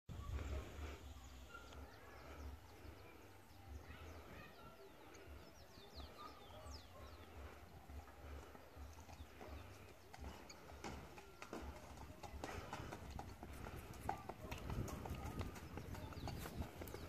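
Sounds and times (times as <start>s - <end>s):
faint birds chirping: 0.1s - 17.0s
wind rumble on microphone: 13.7s - 17.0s.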